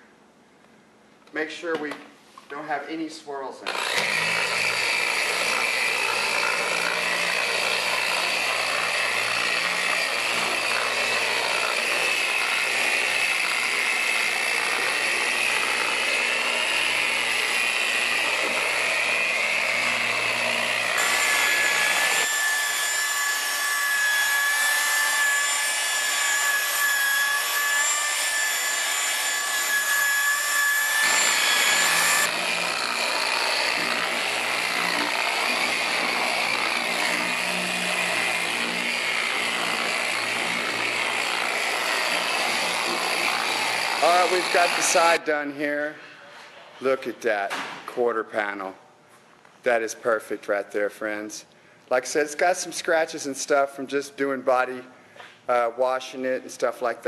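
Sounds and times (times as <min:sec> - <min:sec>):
electric polisher whining: 0:03.7 - 0:45.2.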